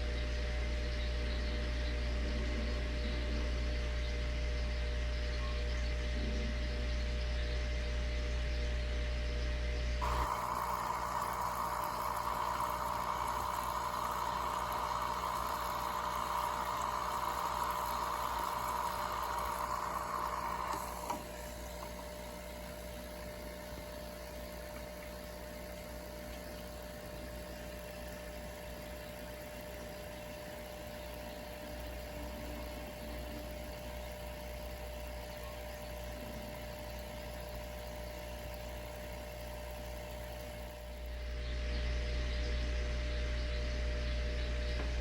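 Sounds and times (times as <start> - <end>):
deep mechanical hum: 0.0 - 45.0
loud hiss: 10.0 - 23.1.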